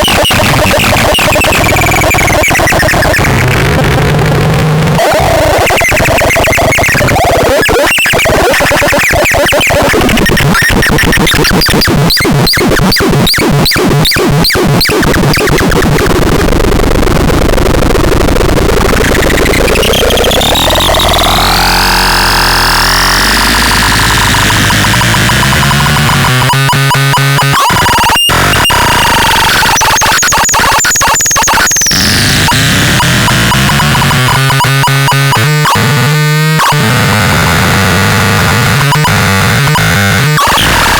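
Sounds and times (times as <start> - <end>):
harsh electronic synth noise: 0.0 - 40.9.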